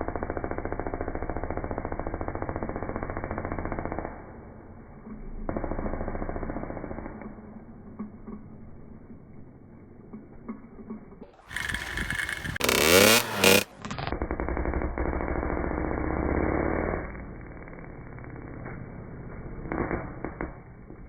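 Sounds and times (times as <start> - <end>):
dirt bike engine at high revs: 0.0 - 4.7, 11.4 - 21.0.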